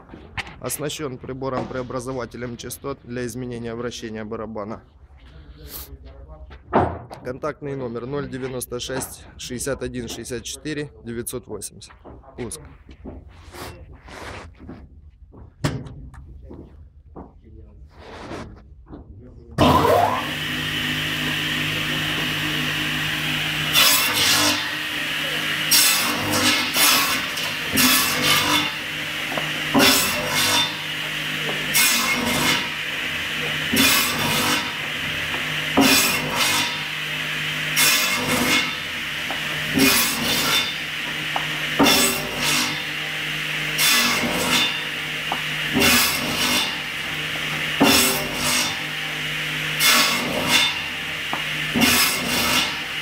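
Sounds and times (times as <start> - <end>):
loud sawing bursts: 19.6 - 53.0
motor hum and saw whine: 19.6 - 53.0.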